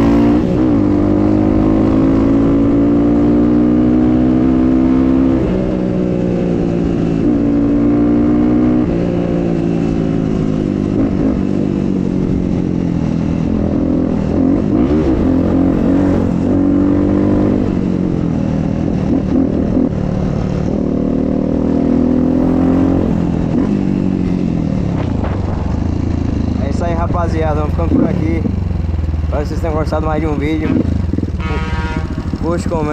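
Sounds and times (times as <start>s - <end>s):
dirt bike engine running: 9.6s - 32.9s.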